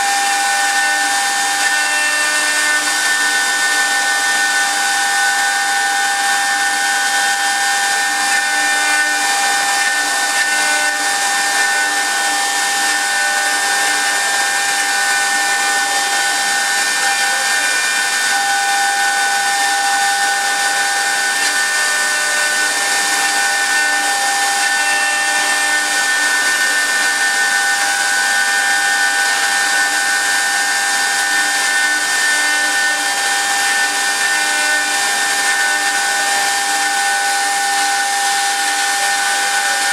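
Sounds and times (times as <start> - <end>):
wood lathe spindle whine: 0.0 - 39.9.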